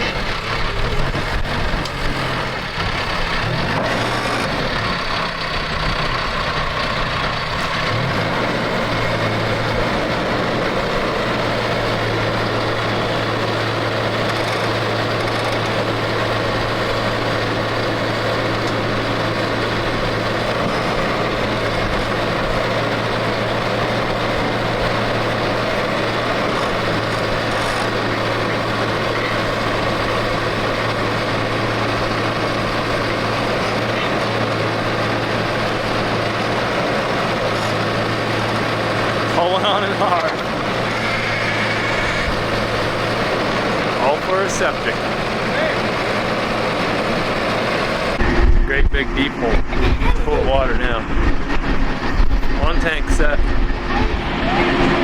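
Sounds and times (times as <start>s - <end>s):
heavy equipment engine running: 0.0s - 55.0s.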